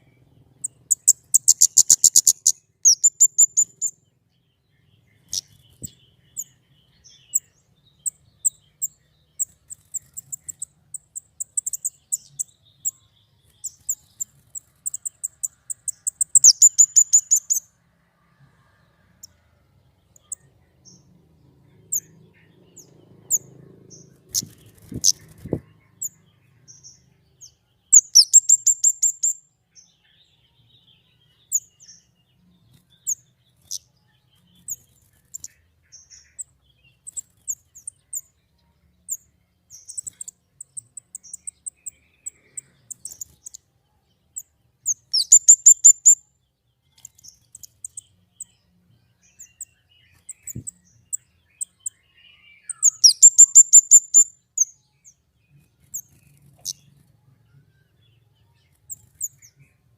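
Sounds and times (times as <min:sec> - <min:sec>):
songbird trilling: 0:00.6 - 0:04.0, 0:05.2 - 0:17.6, 0:21.9 - 0:26.2, 0:27.9 - 0:29.4, 0:44.8 - 0:46.2, 0:49.3 - 0:54.7.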